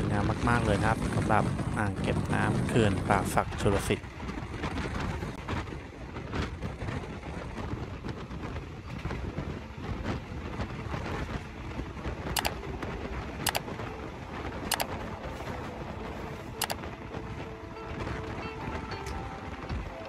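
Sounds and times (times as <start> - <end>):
passenger train rumble: 0.0 - 20.0
wind on microphone: 0.0 - 20.0
sharp clicks: 12.3 - 12.6, 13.4 - 13.6.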